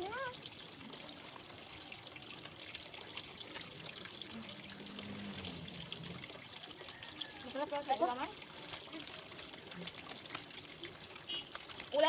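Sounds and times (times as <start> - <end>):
water splashing in plastic bin: 7.4 - 12.0.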